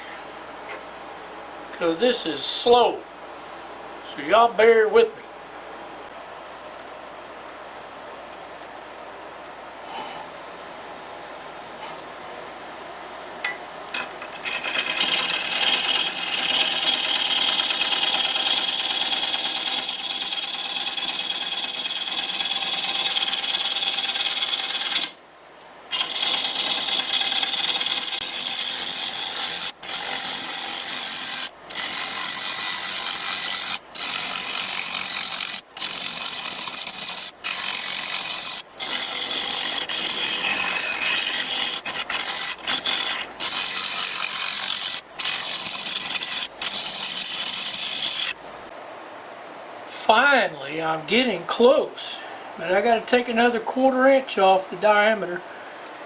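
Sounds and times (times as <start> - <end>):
lathe tool cutting wood: 13.9 - 25.2, 25.9 - 48.4.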